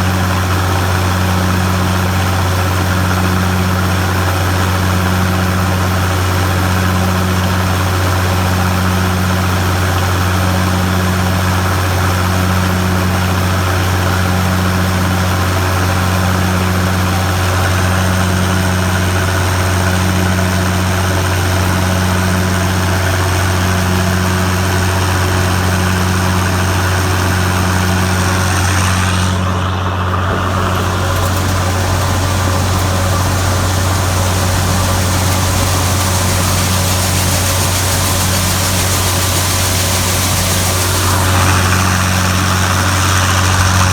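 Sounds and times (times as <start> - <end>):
combine harvester engine drone: 0.0 - 43.9
pulsing hum: 23.8 - 43.9.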